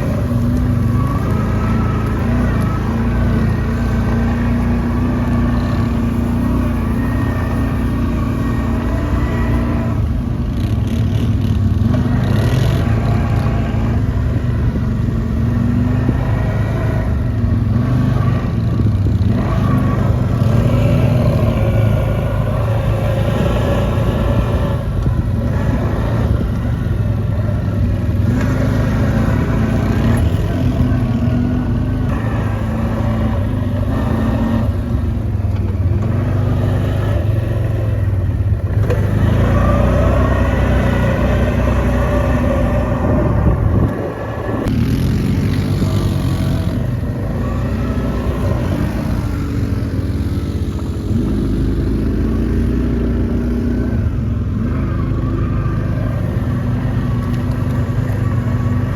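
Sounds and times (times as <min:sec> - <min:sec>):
quad bike engine revving: 0:00.0 - 0:58.9.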